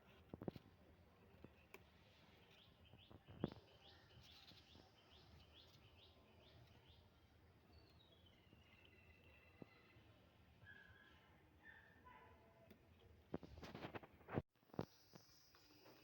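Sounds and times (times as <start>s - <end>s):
faint bird chirping: 1.1s - 13.1s.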